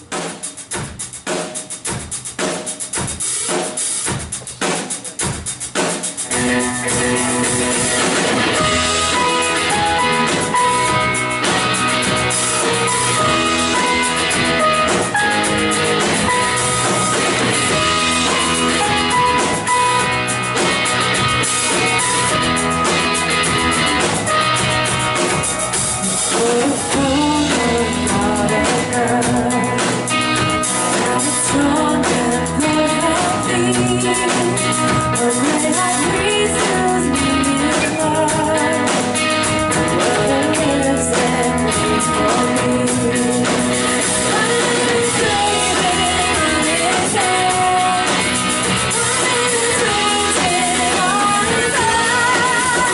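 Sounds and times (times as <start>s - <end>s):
drum kit playing: 0.0s - 52.9s
strummed guitar: 6.3s - 52.9s
person singing: 26.1s - 52.9s.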